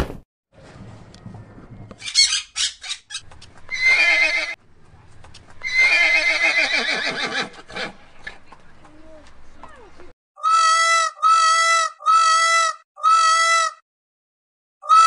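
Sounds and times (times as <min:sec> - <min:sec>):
horse whinnying: 0:03.7 - 0:04.6, 0:05.6 - 0:07.9.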